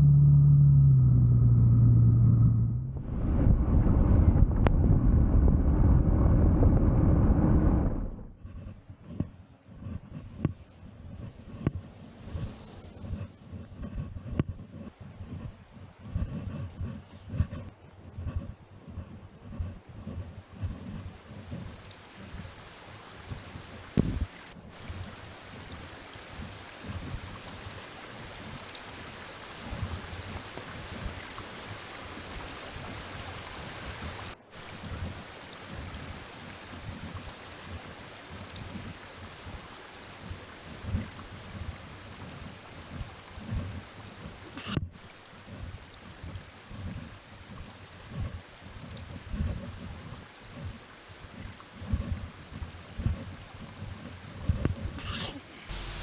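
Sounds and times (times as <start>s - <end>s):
low thumps: 0.0s - 8.4s
running water: 19.6s - 56.0s
rain falling: 21.1s - 53.6s, 55.6s - 56.0s.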